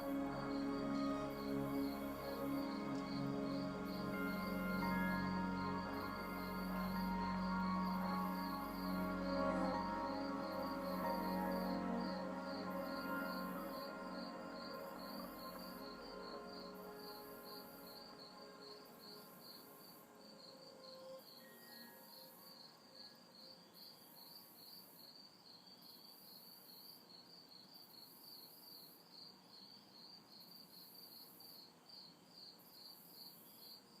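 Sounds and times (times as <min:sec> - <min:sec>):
soft ambient music: 0:00.0 - 0:24.8
insects pulsing chirp: 0:00.0 - 0:34.0.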